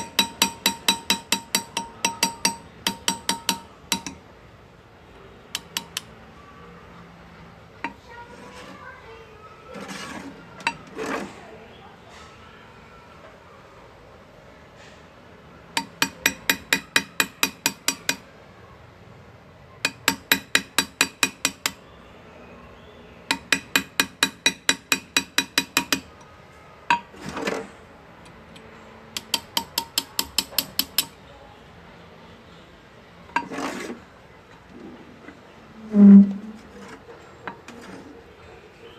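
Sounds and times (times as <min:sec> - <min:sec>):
small hammer tapping a chisel: 0:00.0 - 0:04.2, 0:05.5 - 0:06.1, 0:10.6 - 0:10.9, 0:15.8 - 0:18.3, 0:19.8 - 0:21.8, 0:23.3 - 0:26.3, 0:26.9 - 0:27.1, 0:29.1 - 0:31.2.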